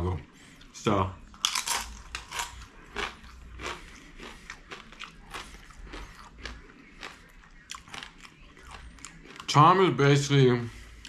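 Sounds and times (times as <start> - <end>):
person chewing food: 0.6 - 9.6
sharp chewing clicks: 2.1 - 9.6.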